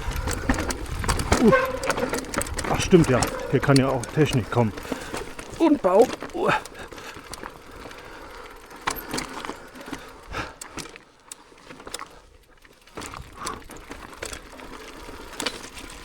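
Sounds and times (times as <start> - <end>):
bike rattling: 0.0 - 16.0
tyres crunching over stones: 0.0 - 16.0.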